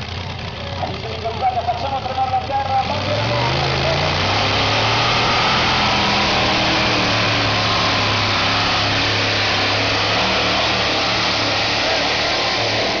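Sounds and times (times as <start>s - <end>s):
tractor engine at full throttle: 0.0s - 13.0s.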